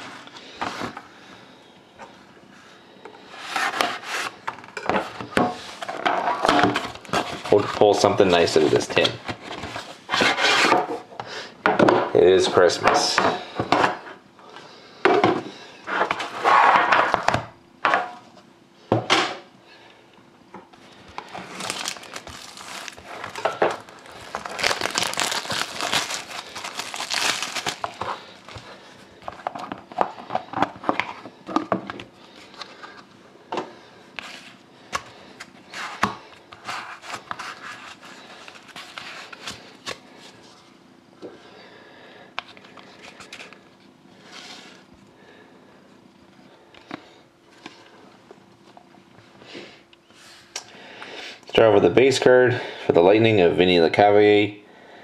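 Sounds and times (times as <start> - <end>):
card wrapping crinkling: 21.2 - 30.0, 35.8 - 40.4.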